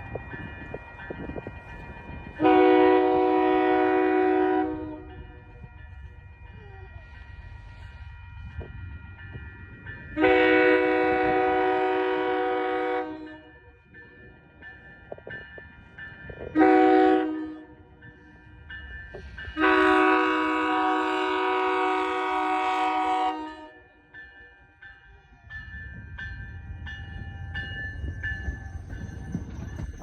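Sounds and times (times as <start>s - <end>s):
crossing bell dinging: 0.0s - 30.0s
train rumble: 0.0s - 30.0s
locomotive air horn blasts: 2.4s - 5.0s, 10.2s - 13.4s, 16.6s - 17.7s, 19.6s - 23.8s.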